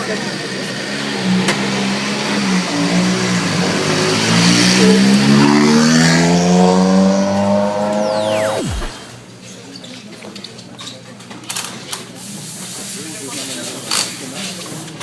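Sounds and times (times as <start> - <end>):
rally car engine accelerating: 1.2 - 9.3.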